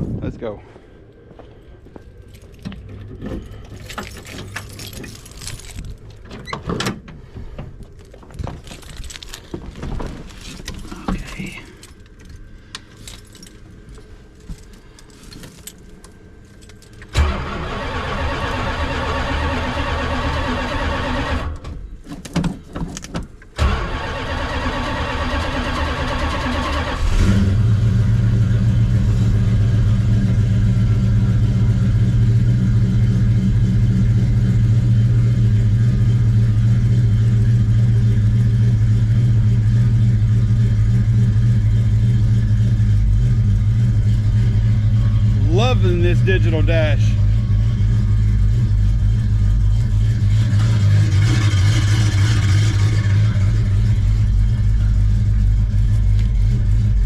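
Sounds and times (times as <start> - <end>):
car engine idling: 7.1 - 21.6, 27.7 - 57.0
engine cranking on starter: 17.0 - 21.6, 23.5 - 27.7.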